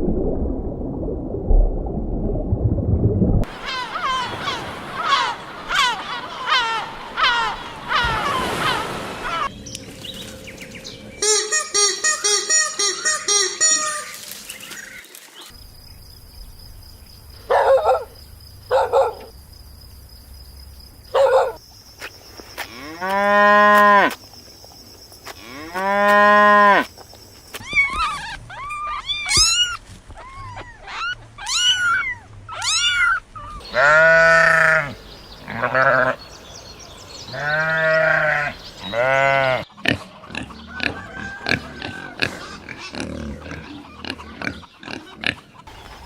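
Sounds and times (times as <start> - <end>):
cattle mooing: 33.6 - 36.2, 37.3 - 39.7.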